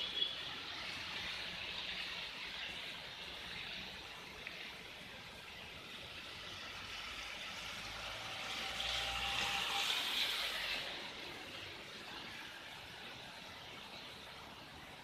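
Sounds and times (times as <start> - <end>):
rain on a wet street: 0.0 - 15.0
vehicle passing: 6.6 - 11.4.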